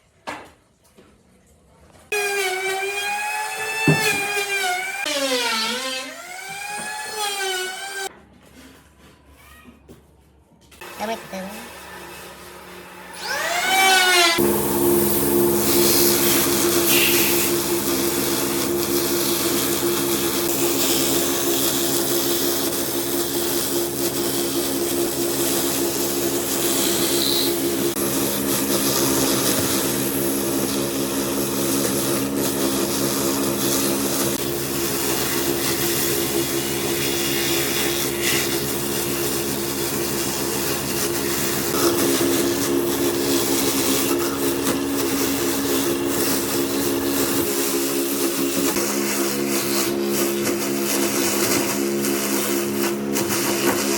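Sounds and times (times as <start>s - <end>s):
power tool motor humming: 13.0s - 53.9s
cutting or grinding hiss: 14.4s - 18.4s.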